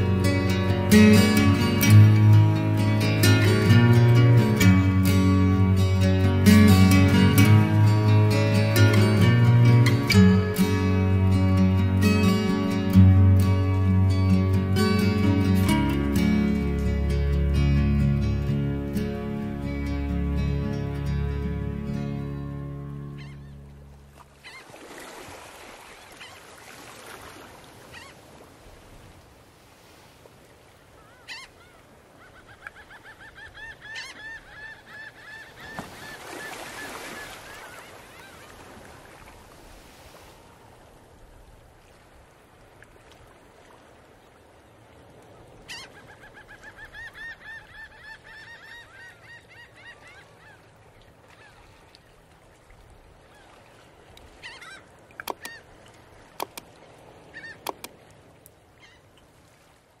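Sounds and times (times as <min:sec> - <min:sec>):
birds calling rapidly: 0:54.4 - 0:55.7
sharp clicks: 0:55.2 - 0:55.5, 0:56.4 - 0:56.7, 0:57.6 - 0:57.9.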